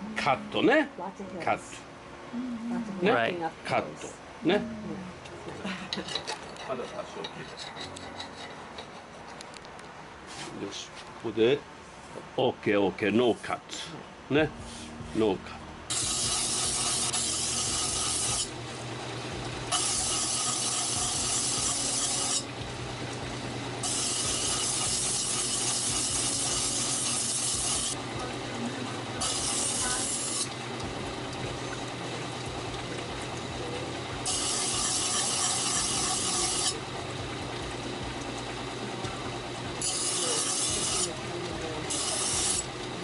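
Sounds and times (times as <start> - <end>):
low steady hum: 0.0 - 9.6, 12.5 - 25.5
knife blade grinding hiss: 15.9 - 18.5, 19.7 - 22.5, 23.8 - 28.0, 29.2 - 30.5, 34.2 - 36.8, 39.8 - 41.1, 41.9 - 42.7.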